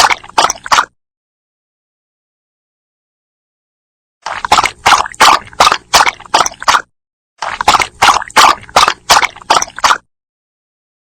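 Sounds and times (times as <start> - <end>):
dog lapping water: 0.0 - 0.9, 4.2 - 10.1.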